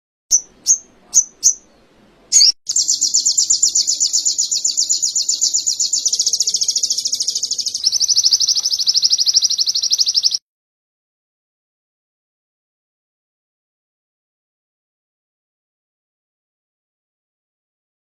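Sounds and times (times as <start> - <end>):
bird chirps and trill: 0.3 - 10.4.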